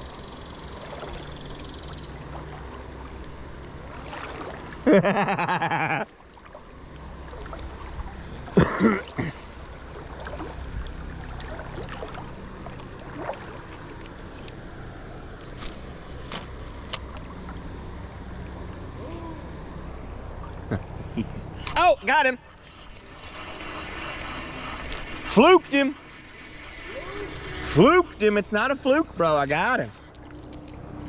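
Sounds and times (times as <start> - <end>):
wind: 0.0 - 31.0
river water rushing: 3.7 - 4.9.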